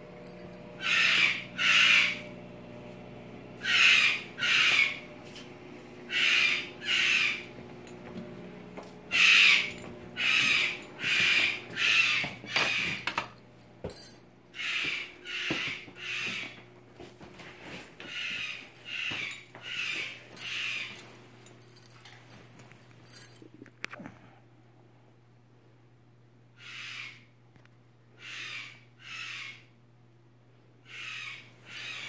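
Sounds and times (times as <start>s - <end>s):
bird giving harsh calls: 0.8s - 2.2s, 3.6s - 5.0s, 6.1s - 7.4s, 9.1s - 12.2s, 14.6s - 16.6s, 26.6s - 27.2s, 28.2s - 29.7s, 30.9s - 32.0s.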